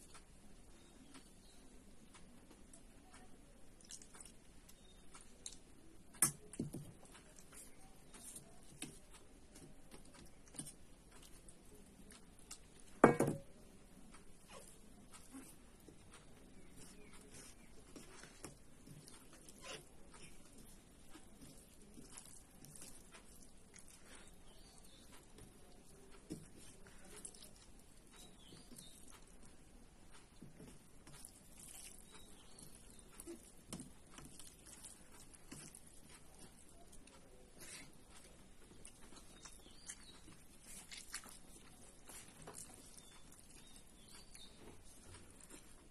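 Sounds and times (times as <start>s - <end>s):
chewing clicks and smacks: 3.6s - 6.5s
person chewing: 16.9s - 29.4s, 31.1s - 45.9s.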